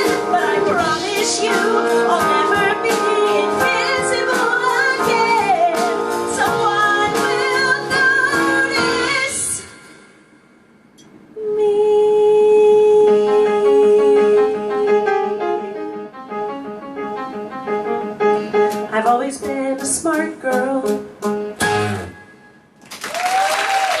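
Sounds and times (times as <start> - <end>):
live band playing: 0.0 - 9.7, 13.8 - 22.7
audience applause: 22.8 - 24.0
person whooping: 23.1 - 24.0.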